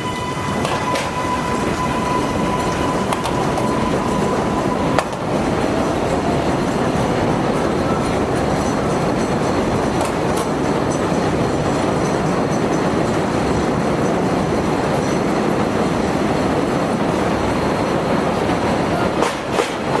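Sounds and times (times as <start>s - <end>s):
thin steady squeal: 0.0s - 6.8s
elevated train rumbling: 0.0s - 20.0s.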